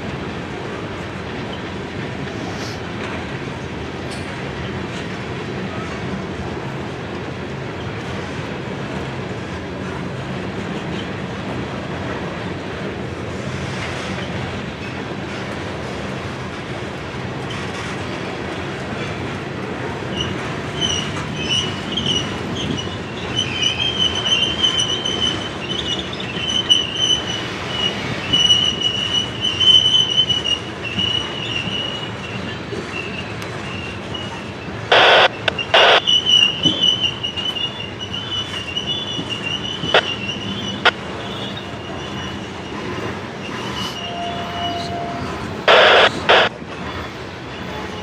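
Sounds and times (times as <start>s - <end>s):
train wheels rumbling on rail: 0.0s - 48.0s
high metallic squeal: 20.8s - 46.0s.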